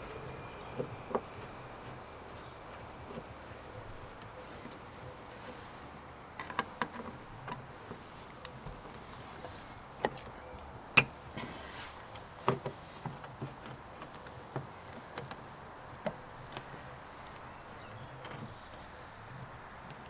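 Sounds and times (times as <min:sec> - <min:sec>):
brief hiss: 0:11.4 - 0:12.0.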